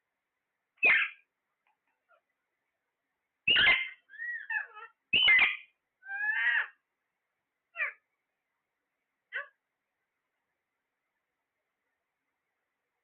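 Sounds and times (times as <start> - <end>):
parrot warbling call: 0.8 - 1.2, 3.5 - 6.8, 7.8 - 8.0
parrot squawking: 0.8 - 1.3, 3.5 - 6.8, 7.7 - 8.0, 9.3 - 9.6.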